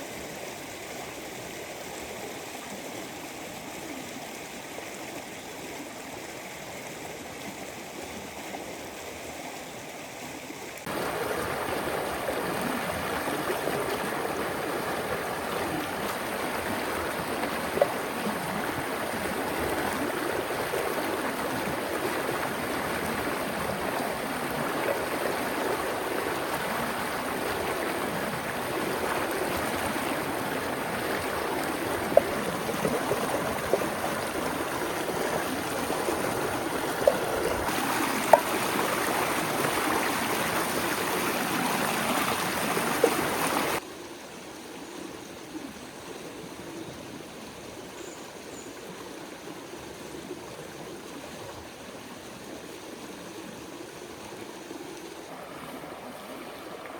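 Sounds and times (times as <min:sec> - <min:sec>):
river water rushing: 0:10.8 - 0:43.8, 0:55.2 - 0:56.9.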